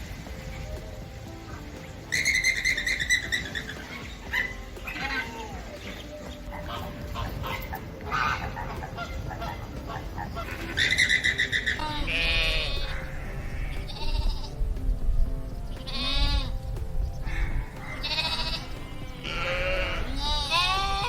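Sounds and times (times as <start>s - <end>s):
goats or sheep bleating: 9.5s - 14.5s, 17.9s - 21.0s.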